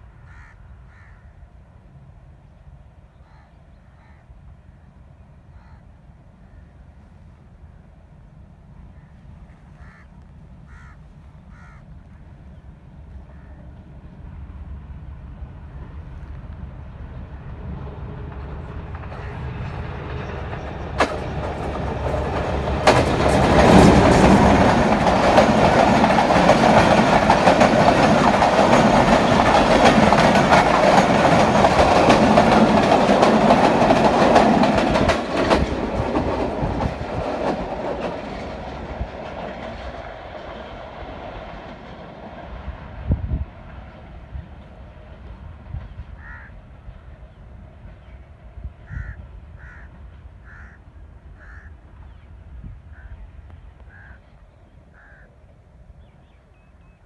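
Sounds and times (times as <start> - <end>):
diesel locomotive passing: 0.0 - 57.0
wheels clattering over rail joints: 18.3 - 42.5.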